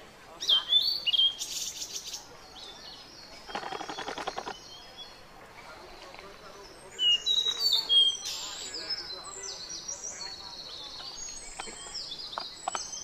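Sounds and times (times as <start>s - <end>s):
birds chirping and whistling: 0.4s - 5.2s, 6.3s - 13.0s
rapid rattling bird chatter: 1.4s - 13.0s
high bird trill: 3.2s - 4.9s.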